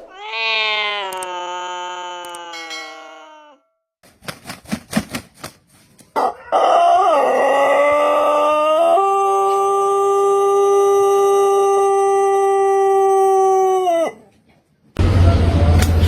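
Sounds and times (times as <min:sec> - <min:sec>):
rooster crowing: 0:06.2 - 0:14.3.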